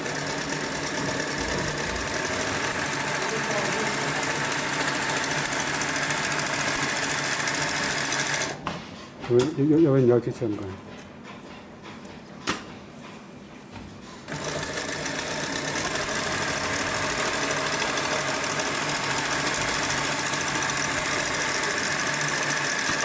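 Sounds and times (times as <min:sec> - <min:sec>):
sewing machine clattering: 0:00.0 - 0:08.6, 0:14.3 - 0:23.0.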